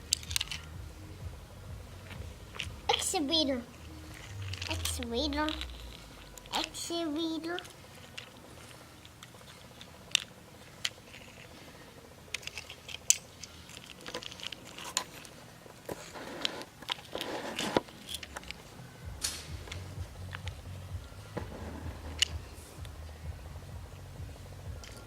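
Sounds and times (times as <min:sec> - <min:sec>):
toy vehicles clicking and knocking: 0:00.0 - 0:00.7, 0:04.1 - 0:11.6, 0:12.3 - 0:18.6
toy vehicles scraping: 0:02.5 - 0:18.7.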